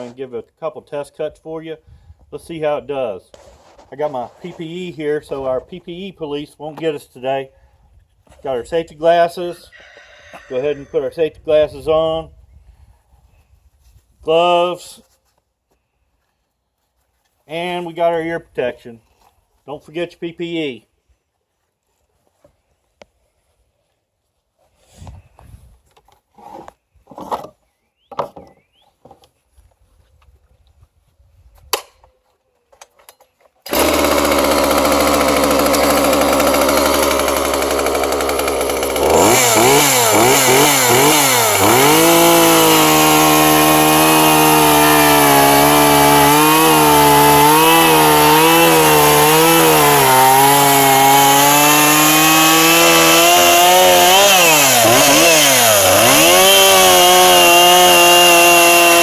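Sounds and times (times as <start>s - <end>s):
chainsaw running at high revs: 33.7s - 59.0s.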